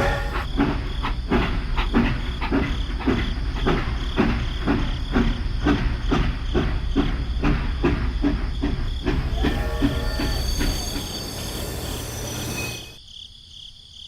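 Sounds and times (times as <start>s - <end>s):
rhythmic clatter: 0.0s - 12.9s.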